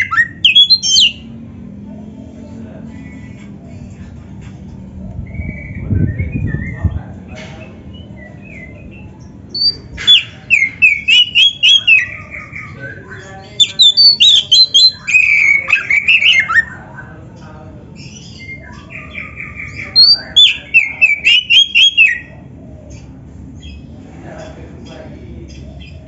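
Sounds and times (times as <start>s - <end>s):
magpie-robin singing: 0.0s - 1.4s, 5.2s - 24.0s, 25.4s - 26.0s.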